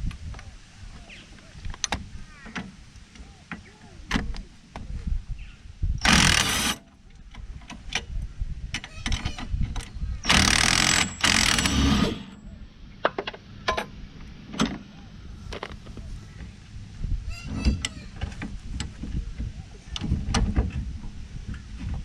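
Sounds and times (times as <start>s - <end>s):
impact wrench running: 6.0s - 6.8s, 10.3s - 12.4s
tools and parts clinking: 10.3s - 12.4s.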